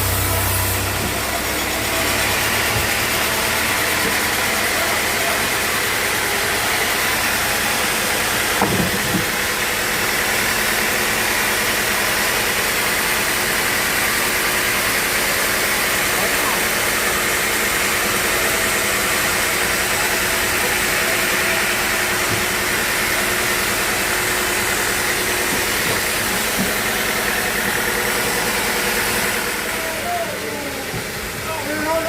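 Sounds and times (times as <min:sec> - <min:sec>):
sawmill machinery running: 0:00.0 - 0:32.0
knocks: 0:08.6 - 0:09.3.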